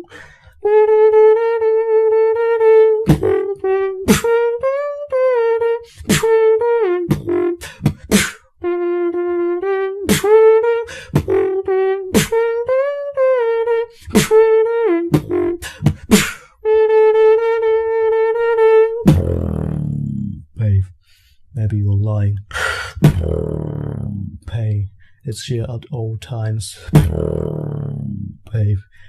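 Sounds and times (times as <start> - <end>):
beatboxing held melodic tone: 0.0 - 20.7, 22.5 - 24.8, 26.3 - 29.0
beatboxed kick and snare hits: 3.1 - 3.3, 4.1 - 4.3, 7.1 - 8.4, 10.1 - 10.4, 12.2 - 12.4, 14.1 - 14.4, 15.1 - 16.3, 19.1 - 19.5, 26.9 - 27.3.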